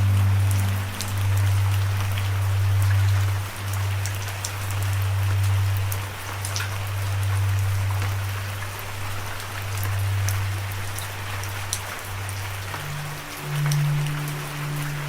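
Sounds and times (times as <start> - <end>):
continuous low rumble: 0.0 - 15.0
raindrops ticking close by: 0.0 - 15.0
steady rain: 0.0 - 15.0.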